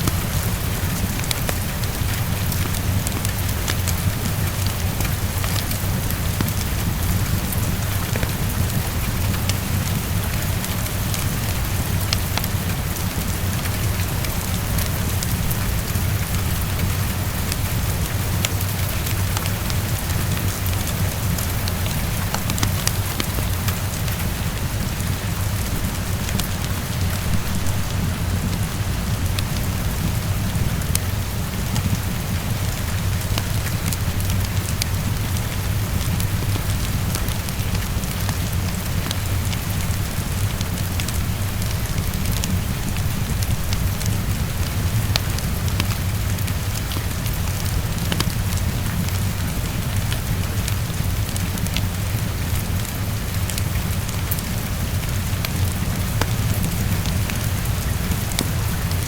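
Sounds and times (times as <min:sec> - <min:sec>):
heavy rain against a window: 0:00.0 - 0:59.0
low rumble: 0:25.5 - 0:31.7.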